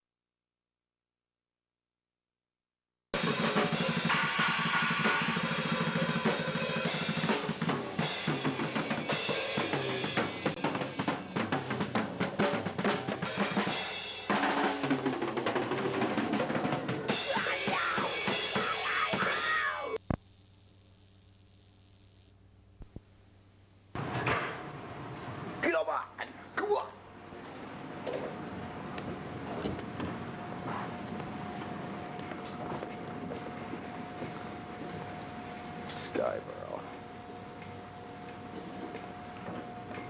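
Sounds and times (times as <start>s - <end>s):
drum kit hits: 3.2s - 18.8s, 24.0s - 25.7s
rock band music: 3.2s - 20.0s.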